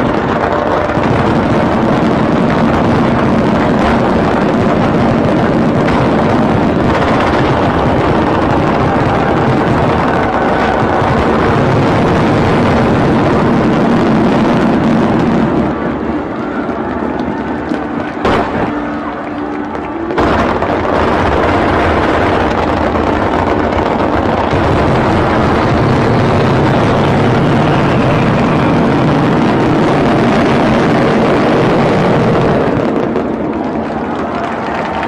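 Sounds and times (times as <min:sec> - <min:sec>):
fireworks barrage rumble: 0:00.0 - 0:35.0.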